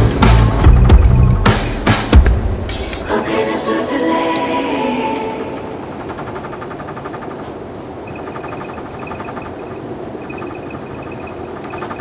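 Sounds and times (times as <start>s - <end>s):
train rumbling and rattling: 0.0s - 3.2s, 5.6s - 12.0s.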